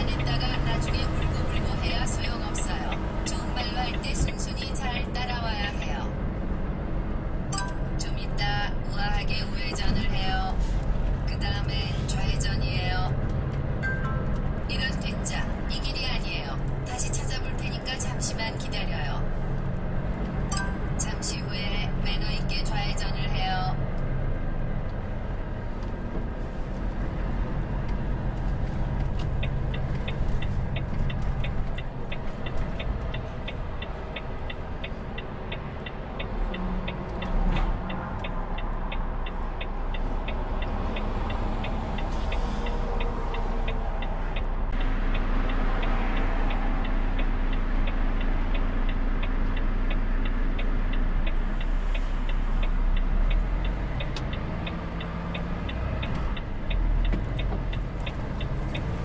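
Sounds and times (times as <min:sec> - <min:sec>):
turn-signal indicator ticking: 0:27.9 - 0:59.0.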